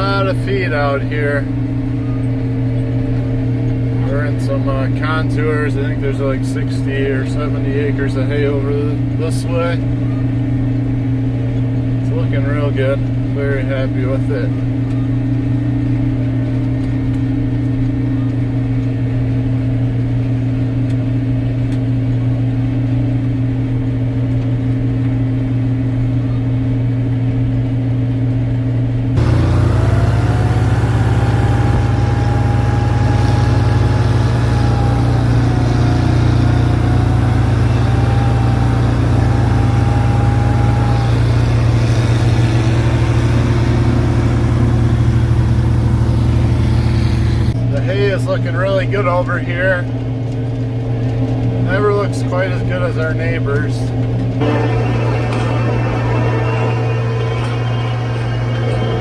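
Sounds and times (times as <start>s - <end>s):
dense machine noise with whine: 0.0s - 59.0s
windrower engine and header running: 29.1s - 59.0s.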